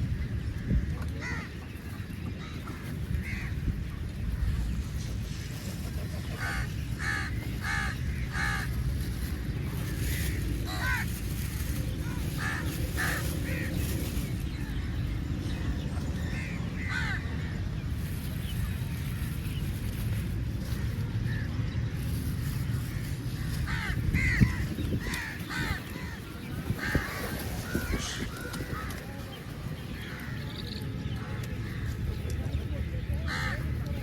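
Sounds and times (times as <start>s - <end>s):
steady low rumble: 0.0s - 34.0s
crows cawing: 1.2s - 1.5s, 6.4s - 8.8s, 10.2s - 11.2s, 12.4s - 13.7s, 16.3s - 17.3s, 23.4s - 29.0s, 33.3s - 33.6s.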